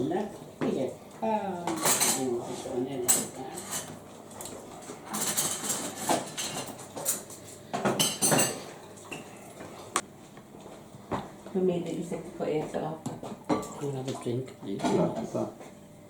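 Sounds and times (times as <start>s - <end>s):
dishes and cutlery clattering: 1.6s - 9.4s, 13.2s - 13.9s, 14.8s - 15.4s.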